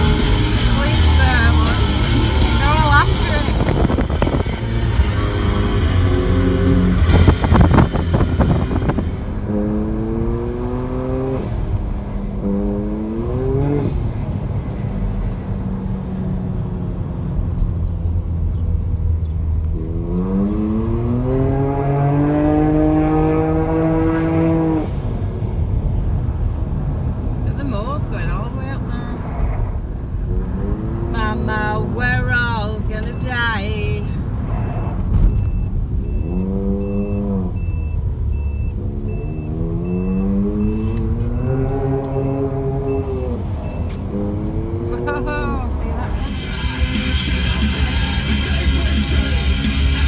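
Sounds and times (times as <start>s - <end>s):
vehicle engine rumbling: 0.0s - 50.0s
reversing alarm beeping: 31.2s - 44.1s.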